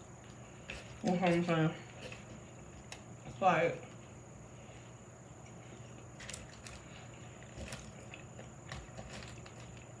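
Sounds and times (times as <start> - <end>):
low room hum: 0.0 - 10.0
chewing sandwich: 3.8 - 10.0.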